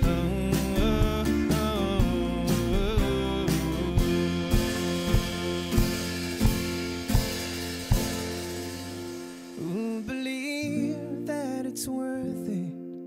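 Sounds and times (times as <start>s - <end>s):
bass: 0.0s - 10.1s
drums steady beat: 0.0s - 10.6s
held chords: 0.0s - 11.7s.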